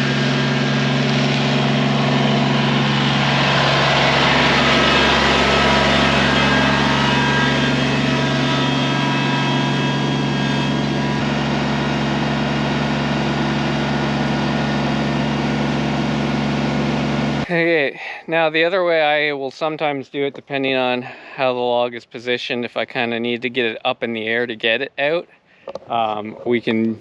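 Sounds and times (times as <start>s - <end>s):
tractor diesel engine running: 0.0s - 17.8s.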